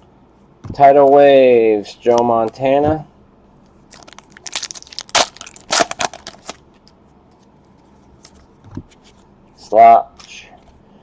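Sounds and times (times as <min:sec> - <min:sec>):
plastic packaging crinkling: 0:03.9 - 0:06.9.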